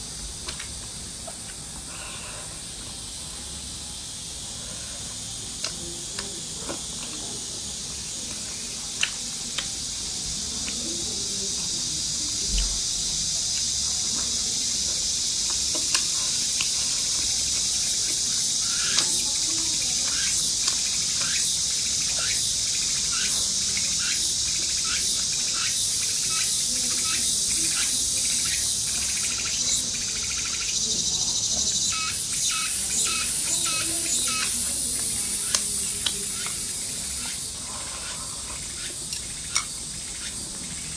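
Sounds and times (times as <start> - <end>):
food sizzling in hot oil: 31.7 - 40.5.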